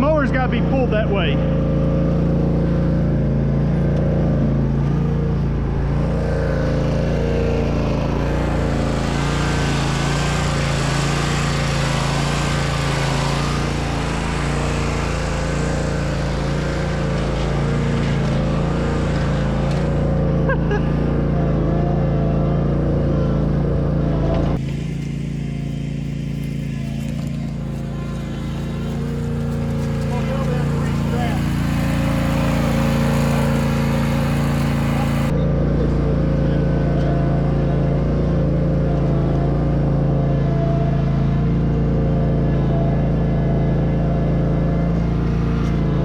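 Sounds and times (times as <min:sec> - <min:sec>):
lawn mower engine under load: 0:04.4 - 0:21.7, 0:24.6 - 0:35.4.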